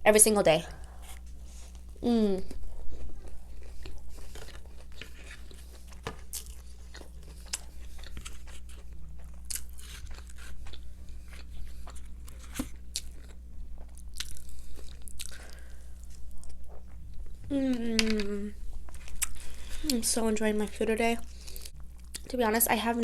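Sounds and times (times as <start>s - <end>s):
crunchy chewing of fried chicken: 0.8s - 17.4s, 18.6s - 20.0s.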